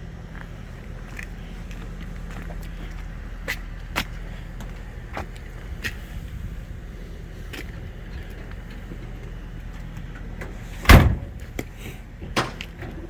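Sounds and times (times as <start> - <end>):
car door thud: 10.8 - 11.4.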